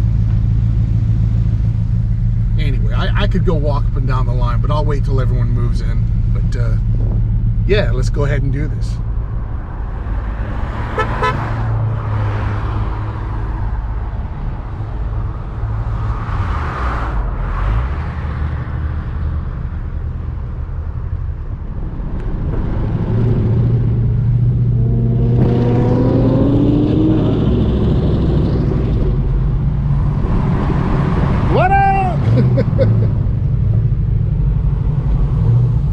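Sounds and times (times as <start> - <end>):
car engines rumbling in traffic: 0.0 - 35.9
engine revving up: 22.4 - 31.6.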